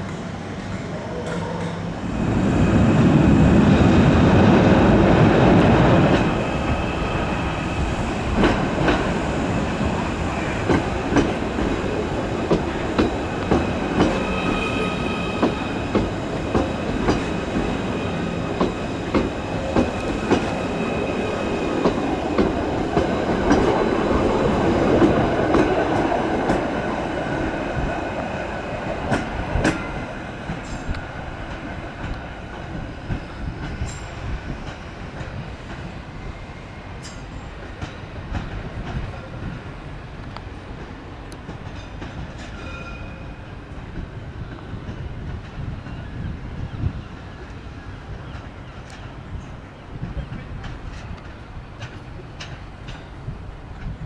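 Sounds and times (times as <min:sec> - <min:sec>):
train wheels clicking on rail joints: 0:03.8 - 0:36.1, 0:37.0 - 0:47.6, 0:48.2 - 0:54.0.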